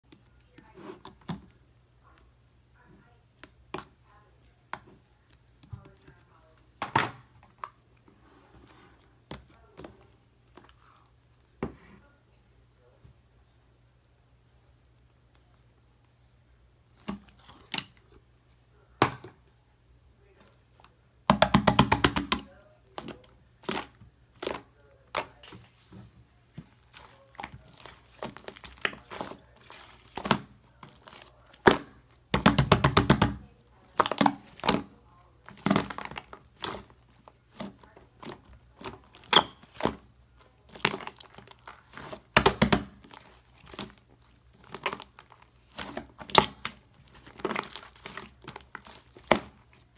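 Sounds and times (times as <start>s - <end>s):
slime squished by hand: 26.6s - 49.9s.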